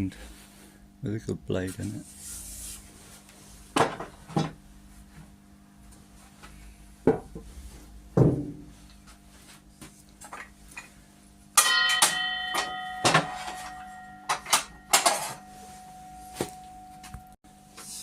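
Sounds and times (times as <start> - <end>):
sharp knocks on workbench: 7.1 - 7.4, 8.2 - 8.6
metal object clanking and ringing: 11.6 - 16.9.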